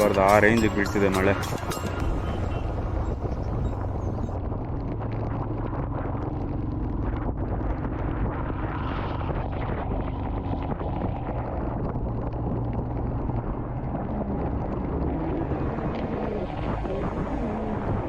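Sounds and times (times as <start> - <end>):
motorcycle engine running: 0.0 - 4.4
wind noise on microphone: 0.0 - 18.0.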